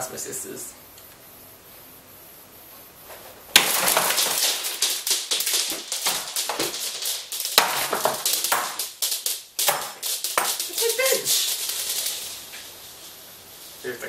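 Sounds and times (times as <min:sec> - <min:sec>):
crunching and banging impacts: 0:03.1 - 0:11.8.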